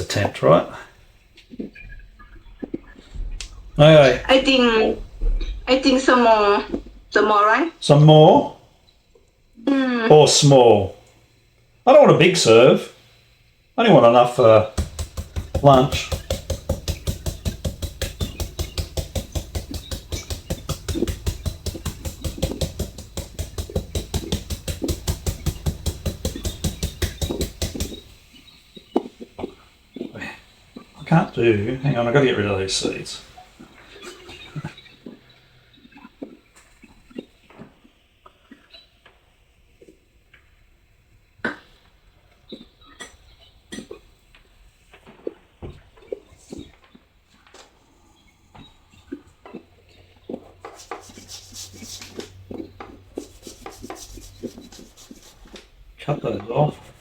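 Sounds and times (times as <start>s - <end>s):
sharp knock: 1.8s - 8.4s, 14.7s - 28.4s, 53.2s - 55.6s
papaya shredding strokes: 14.3s - 34.9s, 50.6s - 55.7s, 56.5s - 57.0s
knife tapping and scraping: 14.8s - 28.3s, 50.6s - 55.6s.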